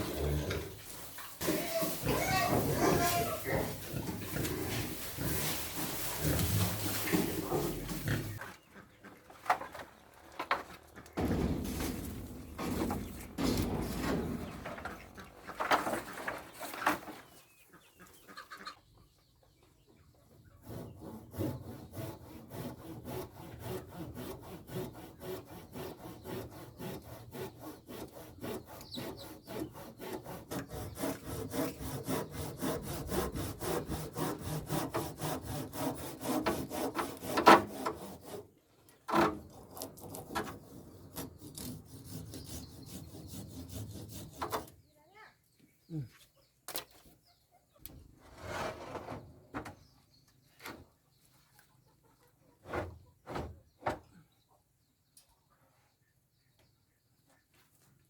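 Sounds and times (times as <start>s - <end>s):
wood being sawn by hand: 20.6s - 38.5s, 39.1s - 44.7s.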